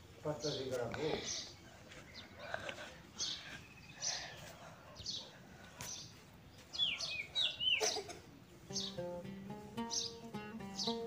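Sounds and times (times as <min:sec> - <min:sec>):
birds chirping: 0:00.0 - 0:11.0
down-swooping bird calls: 0:01.2 - 0:11.0
music with plucked notes: 0:08.6 - 0:11.0.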